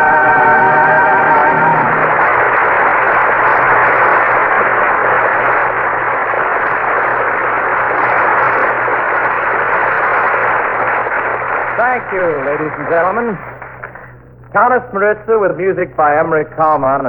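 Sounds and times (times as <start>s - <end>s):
orchestra and choir held notes: 0.0s - 2.5s
audience applauding: 0.0s - 14.2s.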